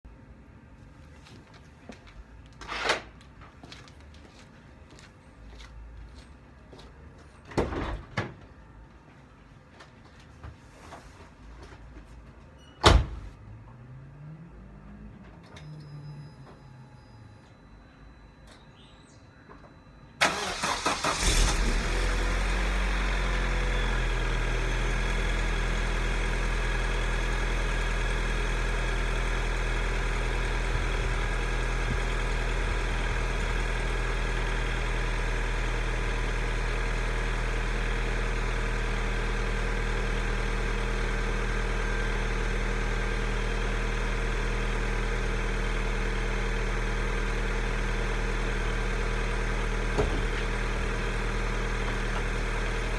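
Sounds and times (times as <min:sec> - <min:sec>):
car engine cold starting and idling: 0:20.2 - 0:52.9.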